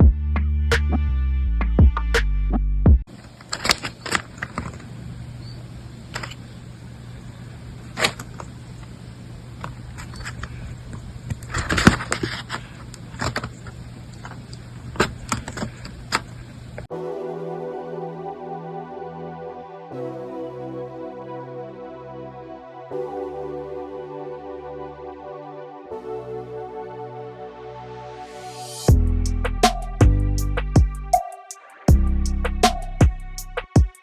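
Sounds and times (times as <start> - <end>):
music: 0.0 - 3.0, 16.9 - 34.0
steady low hum: 2.9 - 16.9
brief rustle: 3.1 - 6.4, 7.8 - 16.9
handling clicks: 3.2 - 5.0.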